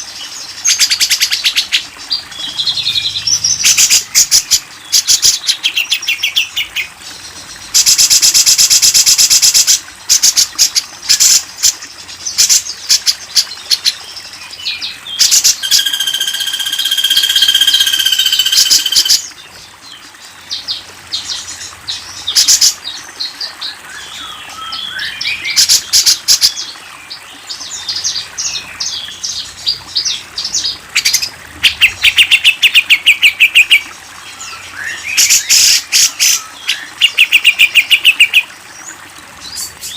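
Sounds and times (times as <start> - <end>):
songbird chirps: 0.0 - 39.9
long held bird whistle: 15.6 - 19.2.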